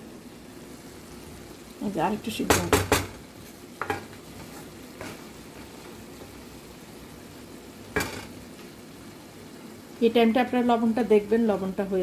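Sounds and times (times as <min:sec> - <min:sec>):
food frying in a pan: 0:00.0 - 0:12.0
spatula scraping a pan: 0:03.8 - 0:05.9.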